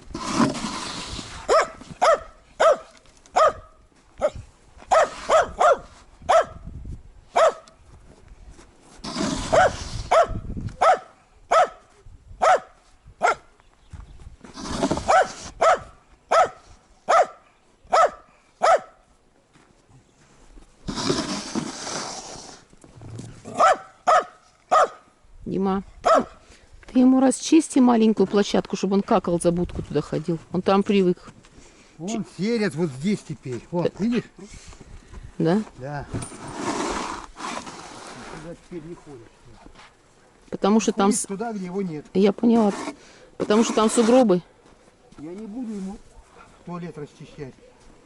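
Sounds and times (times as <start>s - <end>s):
dog barking: 1.5s - 6.6s, 7.4s - 7.7s, 9.5s - 11.8s, 12.4s - 13.4s, 15.1s - 19.0s, 23.5s - 25.0s, 26.0s - 26.4s.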